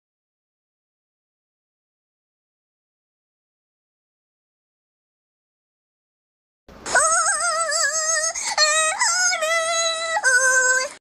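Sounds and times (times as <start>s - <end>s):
cartoon singing voice with vibrato: 6.9s - 11.0s.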